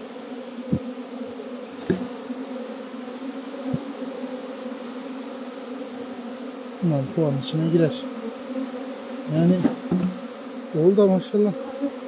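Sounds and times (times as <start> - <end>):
bee swarm buzzing: 0.0 - 12.0
dull handling thumps: 1.8 - 2.1, 9.5 - 10.3.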